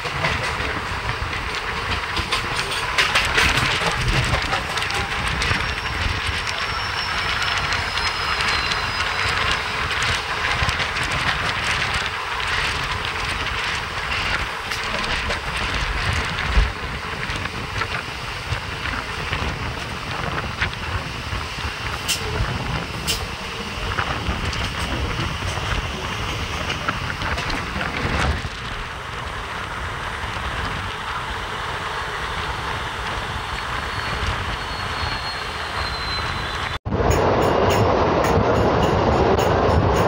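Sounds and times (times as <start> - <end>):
train wheels rumbling on track: 0.0 - 40.0.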